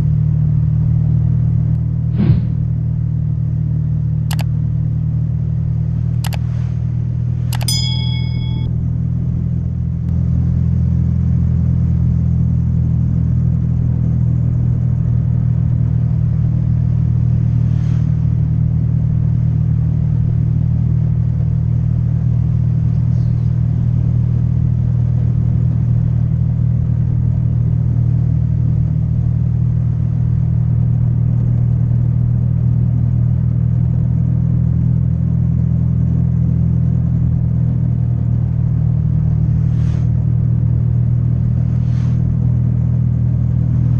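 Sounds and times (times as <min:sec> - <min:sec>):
road noise: 0:14.7 - 0:20.3, 0:38.2 - 0:43.9.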